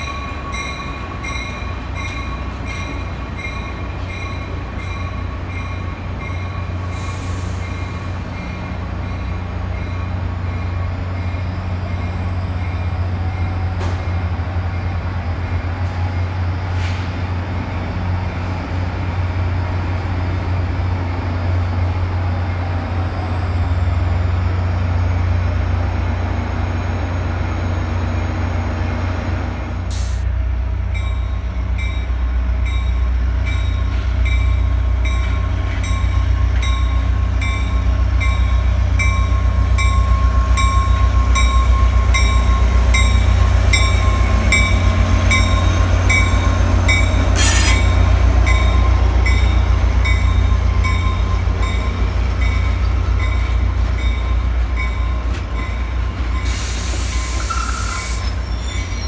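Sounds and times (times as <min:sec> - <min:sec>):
wheel squeal: 0:47.3 - 0:48.0, 0:56.2 - 0:59.0
brief hiss: 0:47.4 - 0:47.9.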